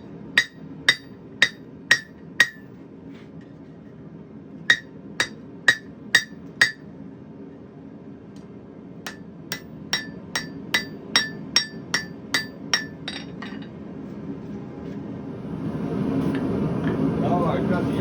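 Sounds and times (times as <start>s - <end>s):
hammer striking steel on anvil: 0.4s - 2.7s, 4.7s - 6.9s, 9.1s - 13.7s.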